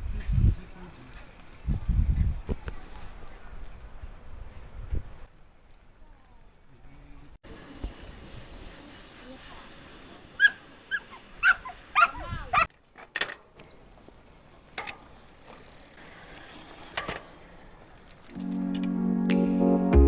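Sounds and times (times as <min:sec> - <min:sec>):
dog barking: 0:10.4 - 0:12.7.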